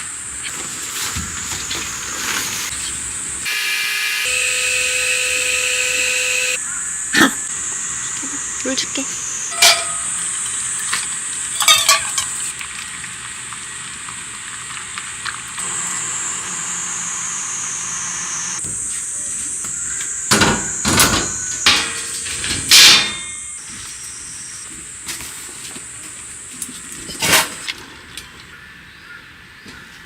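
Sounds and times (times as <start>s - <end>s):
steady high-pitched hiss: 4.1s - 12.5s.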